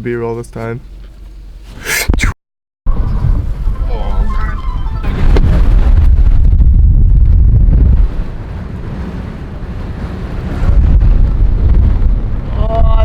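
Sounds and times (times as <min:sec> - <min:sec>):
wind gusts buffeting microphone: 0:02.9 - 0:13.0.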